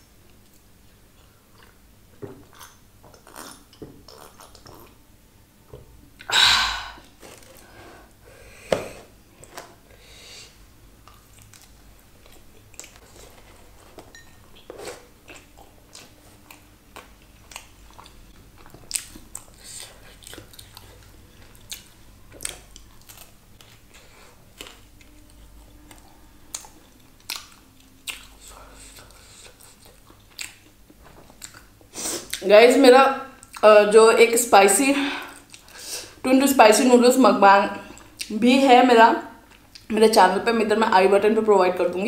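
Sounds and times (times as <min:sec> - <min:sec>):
chewing crunchy food: 0:00.3 - 0:01.8, 0:02.4 - 0:05.0, 0:11.0 - 0:32.4.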